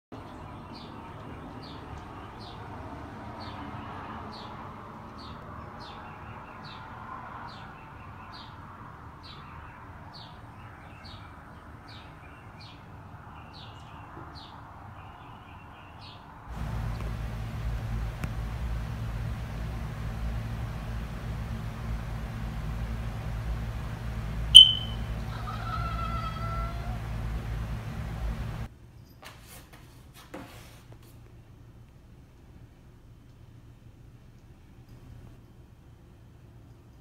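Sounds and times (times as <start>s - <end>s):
low background hum: 16.5s - 29.1s, 31.2s - 37.0s
small bird chirping: 16.7s - 29.2s.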